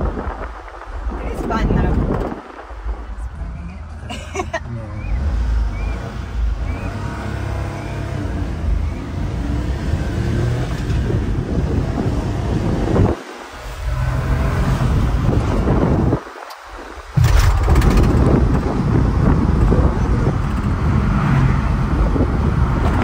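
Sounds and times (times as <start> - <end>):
wind on microphone: 0.0 - 4.3, 5.0 - 23.0
road noise: 0.0 - 23.0
truck engine running: 17.2 - 23.0.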